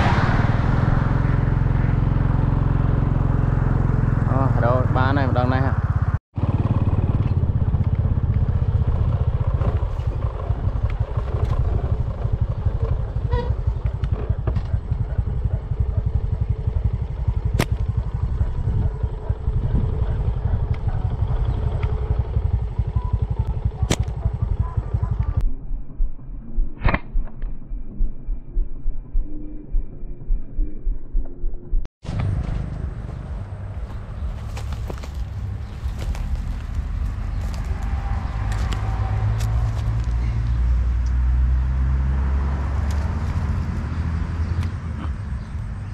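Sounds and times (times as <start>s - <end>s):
motorcycle engine running: 0.0s - 25.5s, 32.1s - 45.9s
low pulsing beat: 12.3s - 31.9s.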